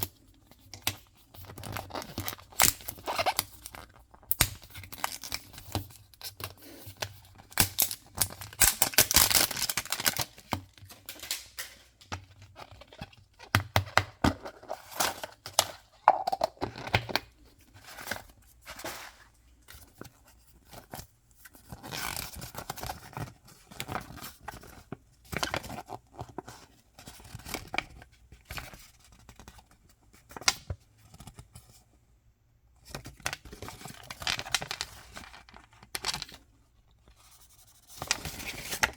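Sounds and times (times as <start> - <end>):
toy packaging tearing and crinkling: 7.1 - 11.8, 33.4 - 36.4.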